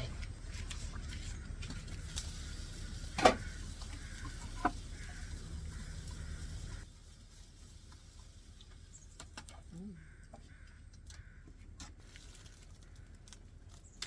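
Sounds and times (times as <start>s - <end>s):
eggs sizzling under a lid: 1.7s - 9.4s.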